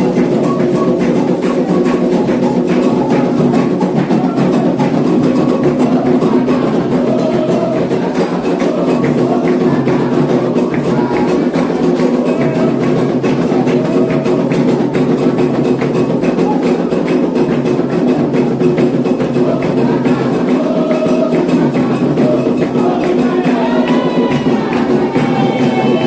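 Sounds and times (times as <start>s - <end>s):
hand drums playing rhythm: 0.0s - 26.0s
voices singing faintly: 0.0s - 26.0s.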